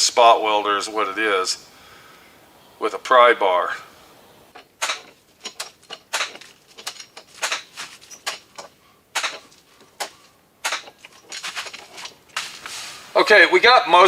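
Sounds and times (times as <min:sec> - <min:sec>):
dent puller clicking and snapping: 0:04.6 - 0:11.2.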